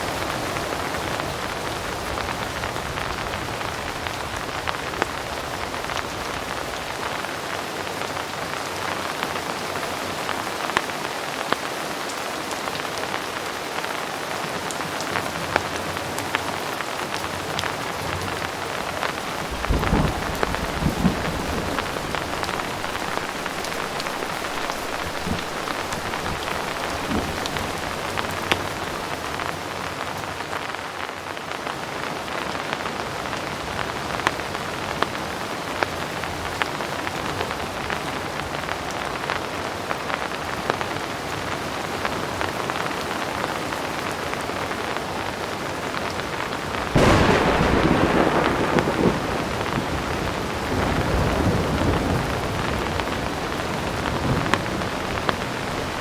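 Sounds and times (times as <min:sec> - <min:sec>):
heavy rain falling: 0:00.0 - 0:56.0
thunder clap and rumble: 0:19.1 - 0:29.5, 0:46.9 - 0:56.0.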